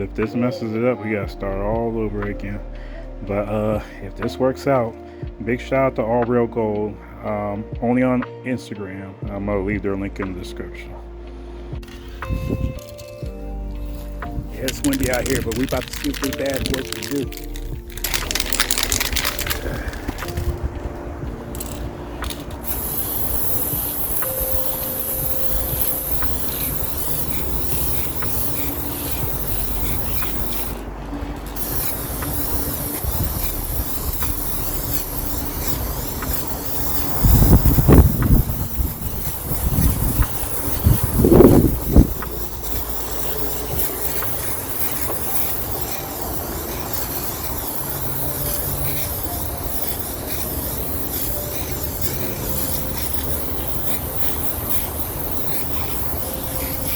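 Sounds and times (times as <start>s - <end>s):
aerosol spray can hissing: 11.8s - 20.8s, 21.4s - 56.9s
wind rumble on microphone: 12.2s - 13.4s, 19.5s - 22.9s, 29.2s - 44.0s.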